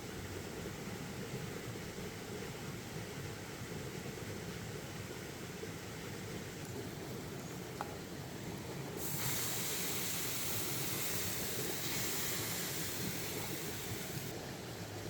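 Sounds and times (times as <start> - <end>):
steady hiss: 6.4 - 14.4.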